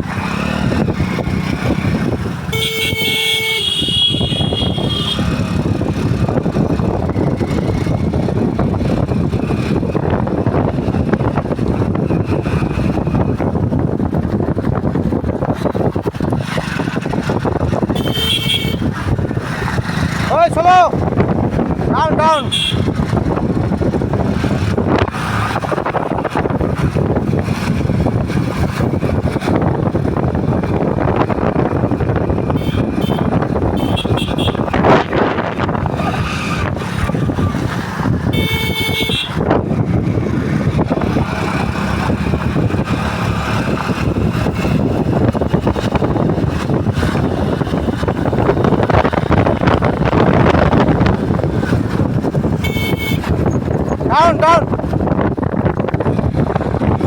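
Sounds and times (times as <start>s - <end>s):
motorcycle engine: 0.0s - 57.0s
wind rushing over microphone: 0.0s - 57.0s
vehicle horn: 2.5s - 5.4s, 17.9s - 18.9s, 22.4s - 22.9s, 32.5s - 34.9s, 38.3s - 39.4s, 52.6s - 53.4s.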